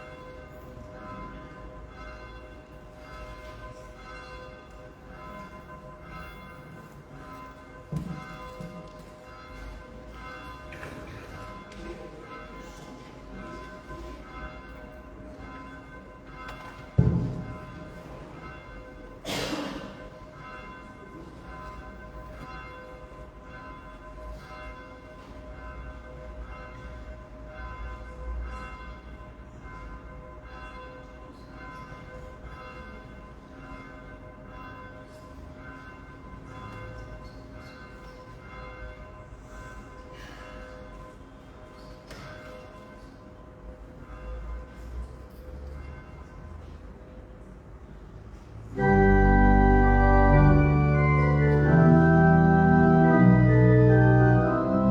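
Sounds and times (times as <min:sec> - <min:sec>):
church bells ringing: 0:00.0 - 0:45.1, 0:48.7 - 0:54.9
loud thump: 0:17.0 - 0:17.8.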